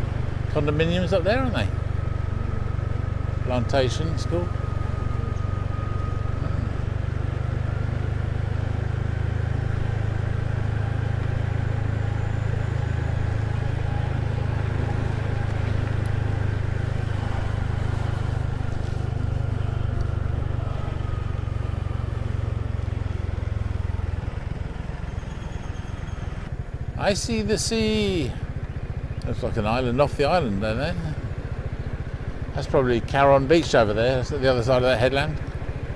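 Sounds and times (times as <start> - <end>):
motor scooter engine hum: 0.0 - 35.9
wind and road noise: 0.0 - 35.9.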